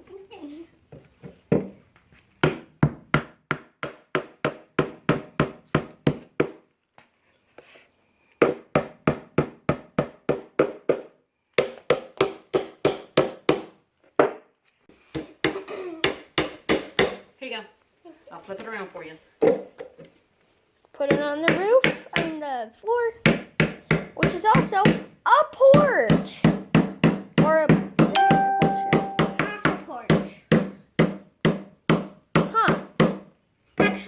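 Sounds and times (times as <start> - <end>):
hammer driving nails into wood: 30.5 - 33.3.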